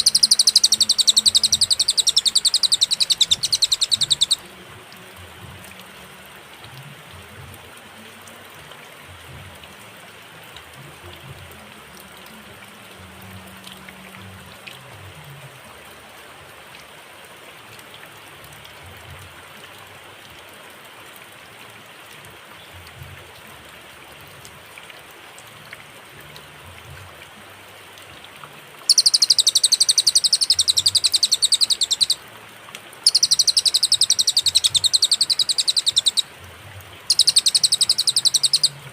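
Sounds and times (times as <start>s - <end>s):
bird singing rapid high trills: 0.0s - 4.4s, 28.9s - 32.2s, 33.0s - 36.3s, 37.1s - 38.8s
background hiss: 0.0s - 38.9s.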